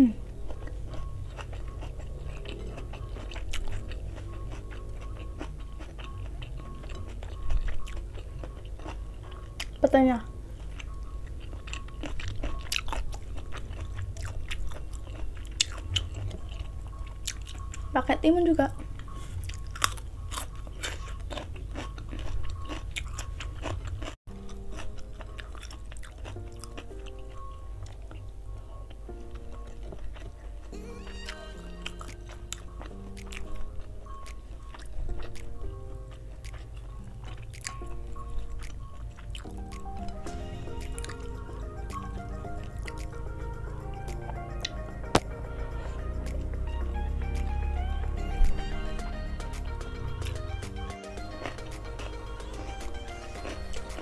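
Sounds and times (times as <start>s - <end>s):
soft background music: 0.0s - 54.0s
close wet chewing with clicks: 0.2s - 9.9s, 10.5s - 17.9s, 18.8s - 30.7s, 32.0s - 46.7s.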